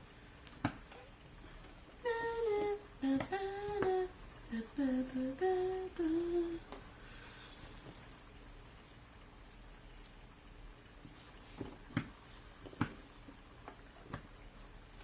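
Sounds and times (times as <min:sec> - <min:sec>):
person humming a tune: 0:02.0 - 0:06.8.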